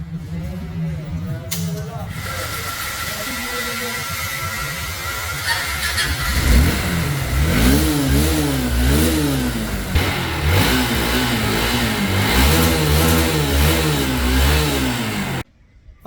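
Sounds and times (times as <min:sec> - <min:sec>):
motorcycle engine revving: 0:02.0 - 0:15.4.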